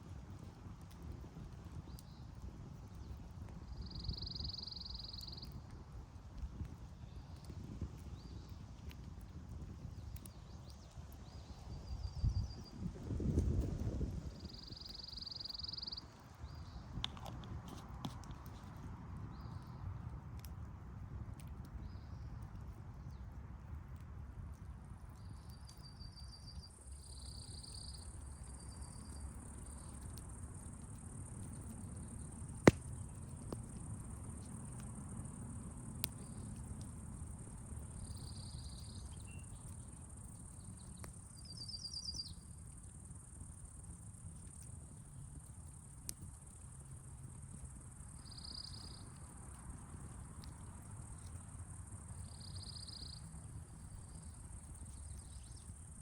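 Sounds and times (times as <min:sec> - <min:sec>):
crickets and insects trilling: 0:26.8 - 0:56.0.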